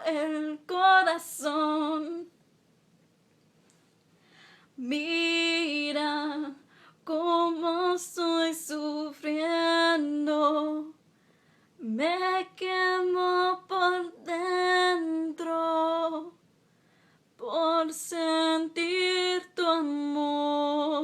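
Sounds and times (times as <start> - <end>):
woman singing unaccompanied: 0.0 - 2.3, 4.8 - 11.0, 11.8 - 16.4, 17.4 - 21.0.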